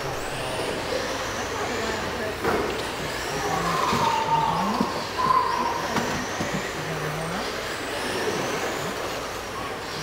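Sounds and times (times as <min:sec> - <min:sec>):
model truck motors whining: 0:00.0 - 0:10.0.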